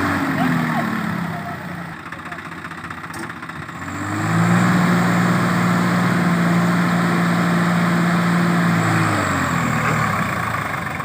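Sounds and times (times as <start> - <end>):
tractor diesel engine revving: 0.0 - 11.0.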